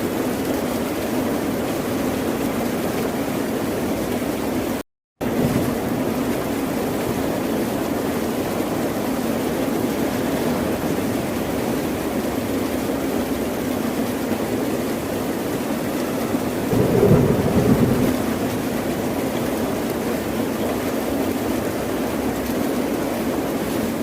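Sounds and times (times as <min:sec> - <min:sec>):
ocean waves and surf: 0:16.7 - 0:20.6.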